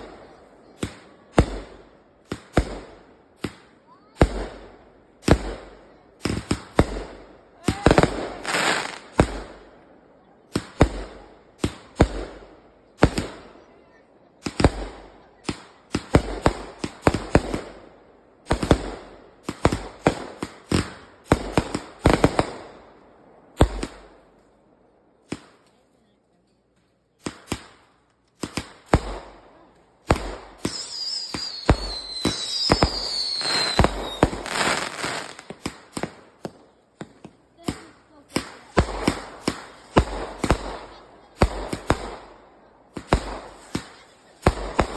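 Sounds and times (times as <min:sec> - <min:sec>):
firework crackling: 0:00.0 - 0:09.7, 0:14.4 - 0:22.9, 0:27.2 - 0:44.9
firework bangs: 0:00.0 - 0:09.8, 0:10.4 - 0:13.6, 0:14.4 - 0:24.3, 0:27.2 - 0:44.9
firework whistles falling in pitch: 0:30.7 - 0:34.2.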